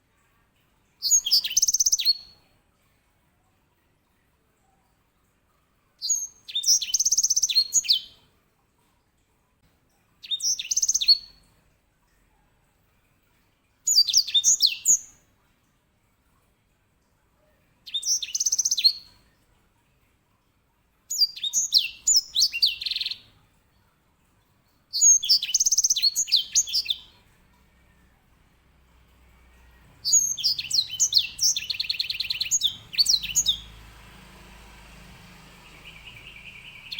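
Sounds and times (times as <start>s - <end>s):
finch singing high trills: 25.0s - 27.1s, 29.8s - 36.9s.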